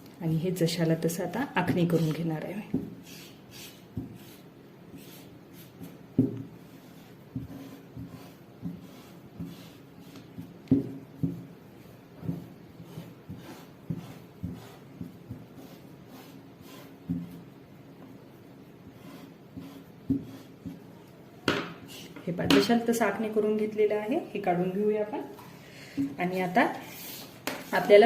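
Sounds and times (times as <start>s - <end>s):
marker scratching on cloth: 3.0s - 6.0s, 6.7s - 10.6s, 19.0s - 20.7s.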